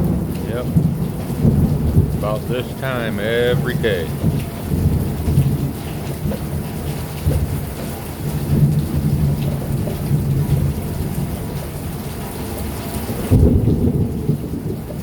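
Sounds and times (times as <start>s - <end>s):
rolling thunder rumble: 0.0s - 2.7s, 13.3s - 15.0s
heavy rain pouring: 0.0s - 15.0s.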